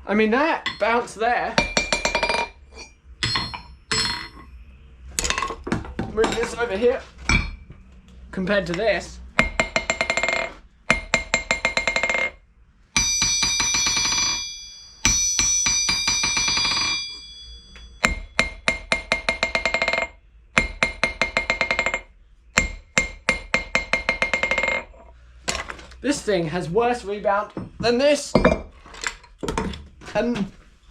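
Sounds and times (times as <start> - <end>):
ringing anvil strikes: 0.6 - 1.0, 1.6 - 4.6, 13.0 - 24.9
steel bouncing on anvil: 0.6 - 1.0, 1.6 - 4.5, 13.0 - 24.9.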